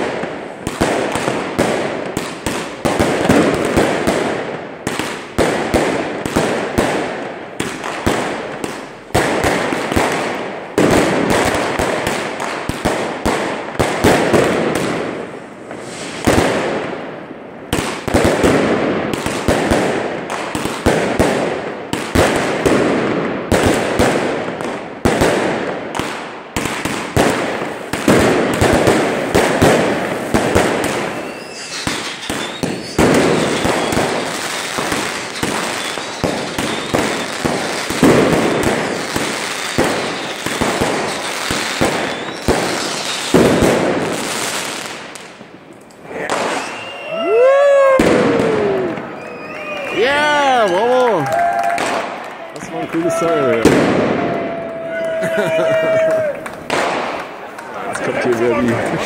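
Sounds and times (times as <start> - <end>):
fireworks bursting: 0.0 - 50.8, 51.4 - 55.0, 55.6 - 59.0
thin wavering whistle: 46.6 - 47.2.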